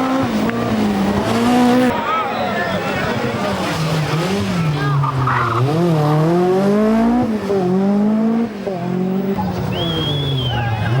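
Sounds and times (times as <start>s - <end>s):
rally car engine revving hard: 0.0s - 2.0s, 3.1s - 11.0s.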